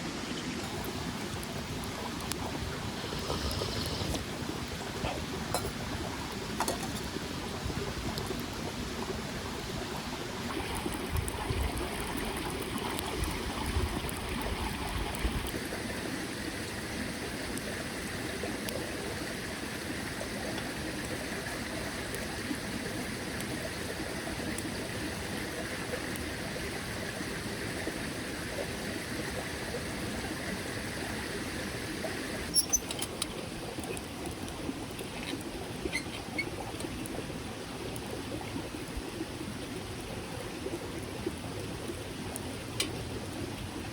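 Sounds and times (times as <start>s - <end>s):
stream trickling: 0.0s - 43.9s.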